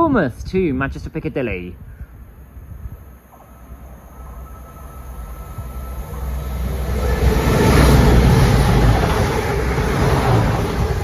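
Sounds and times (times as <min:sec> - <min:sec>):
diesel train engine rumble: 0:01.9 - 0:11.0
train wheel noise: 0:03.1 - 0:11.0.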